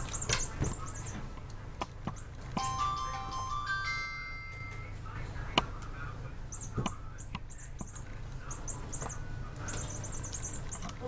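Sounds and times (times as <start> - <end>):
small bird chirping: 0.0 - 1.3, 6.5 - 11.0.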